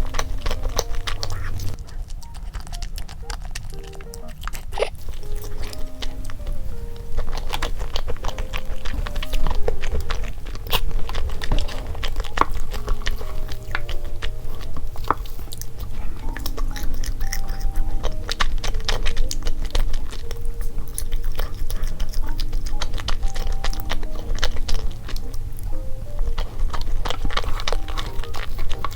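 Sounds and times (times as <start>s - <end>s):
chewing and wet mouth smacks: 0.0s - 28.9s
light cute background music: 0.0s - 28.9s.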